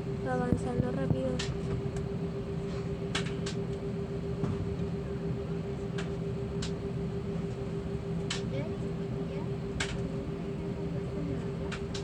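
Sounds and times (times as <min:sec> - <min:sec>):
constant cabin hum: 0:00.0 - 0:12.0.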